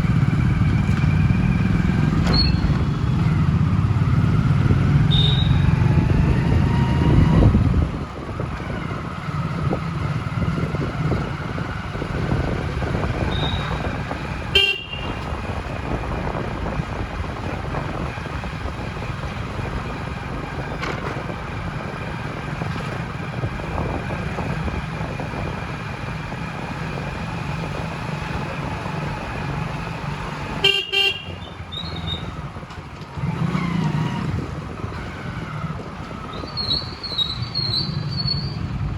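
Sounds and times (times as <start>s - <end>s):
vehicle engine and road noise: 0.0s - 38.9s
car horn toots: 5.1s - 5.7s, 13.3s - 15.3s, 30.6s - 31.6s.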